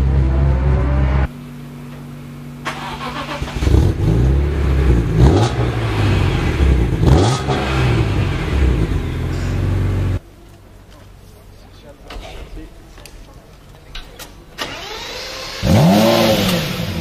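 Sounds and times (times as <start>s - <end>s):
car engine revving: 0.0s - 1.4s, 2.6s - 10.2s, 14.7s - 17.0s
engine cranking: 2.7s - 3.9s, 14.6s - 17.0s.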